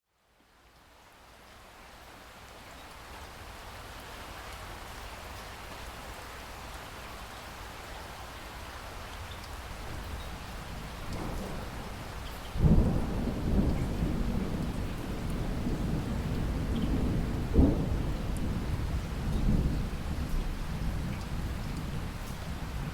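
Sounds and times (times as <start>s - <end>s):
rain hiss: 0.1s - 22.9s
thunder rumbling: 9.9s - 22.9s
loud thunderclap: 11.0s - 21.1s.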